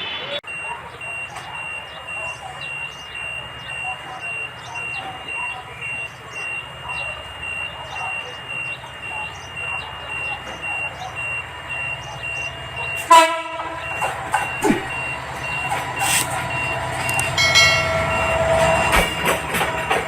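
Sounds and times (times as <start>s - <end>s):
diesel locomotive rumbling: 0.0s - 20.0s
high electronic beeps: 0.4s - 13.2s, 13.8s - 20.0s
train horn blast: 13.0s - 14.0s
long pitched tone: 16.5s - 19.3s.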